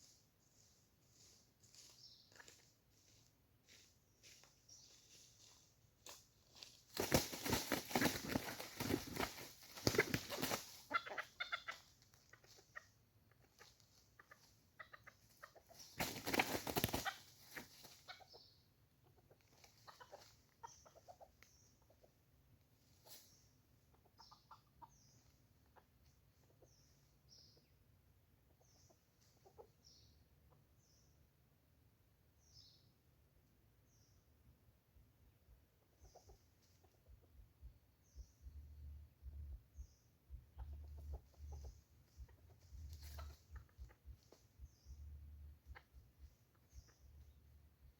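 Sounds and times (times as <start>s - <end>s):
junglefowl clucking: 7.4s - 22.2s, 23.8s - 27.7s, 28.5s - 30.6s, 35.8s - 37.6s, 40.4s - 47.4s.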